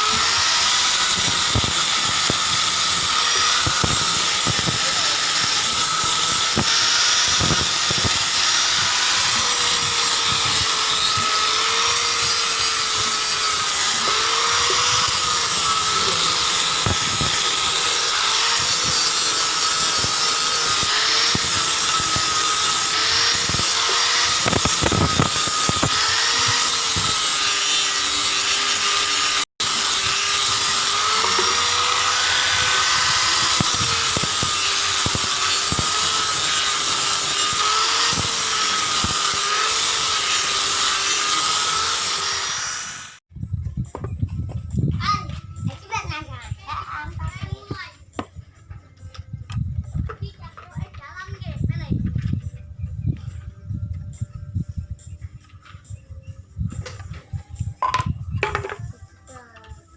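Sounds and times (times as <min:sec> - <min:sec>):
electric power tool running: 0:00.0 - 0:43.2.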